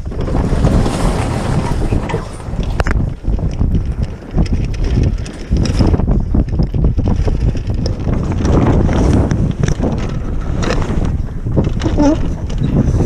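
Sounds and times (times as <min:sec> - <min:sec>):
knocks and rattles: 0:00.0 - 0:13.0
wind buffeting microphone: 0:00.0 - 0:13.0.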